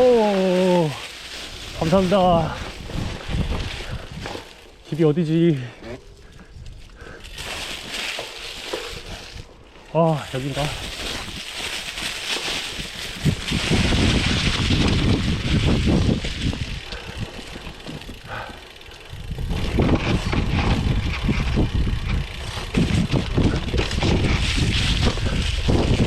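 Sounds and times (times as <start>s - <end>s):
bicycle tyre rumble: 0.0s - 26.0s
wind rushing over microphone: 1.5s - 4.5s, 12.7s - 26.0s.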